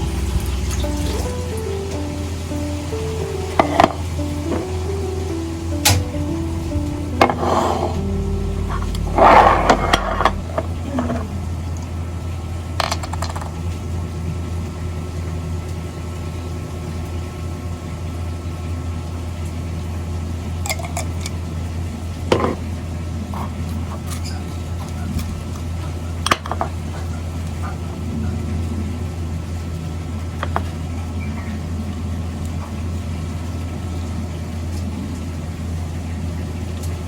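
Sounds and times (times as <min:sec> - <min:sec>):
steady low hum: 0:00.0 - 0:12.3.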